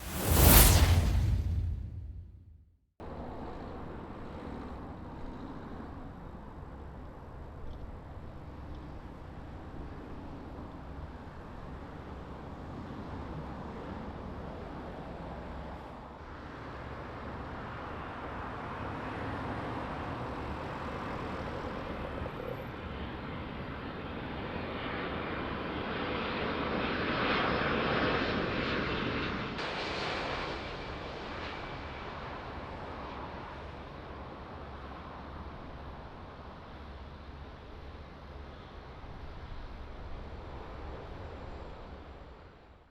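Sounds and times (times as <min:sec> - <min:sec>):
jet engines rushing: 0:00.0 - 0:02.6.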